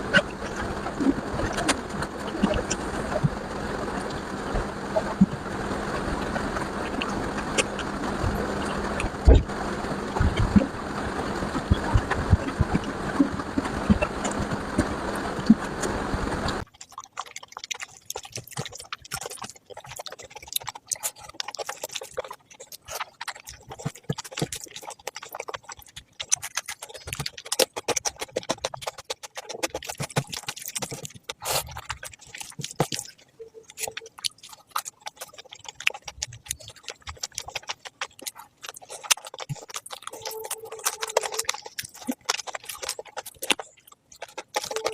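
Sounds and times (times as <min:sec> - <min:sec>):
dense rushing noise: 0:00.0 - 0:16.6
wet chewing clicks and smacks: 0:06.0 - 0:44.9.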